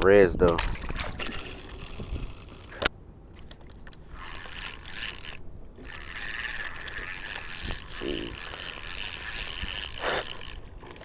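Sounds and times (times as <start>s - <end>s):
scraping on kayak: 0.5s - 11.0s.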